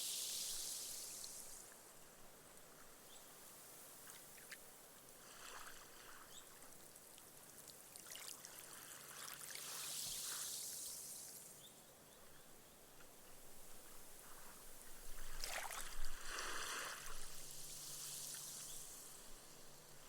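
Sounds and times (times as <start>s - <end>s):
foam fizzing into sand: 0.0s - 1.7s, 9.0s - 11.6s, 15.3s - 19.8s
gentle waves washing on sand: 7.9s - 11.6s, 14.1s - 20.0s.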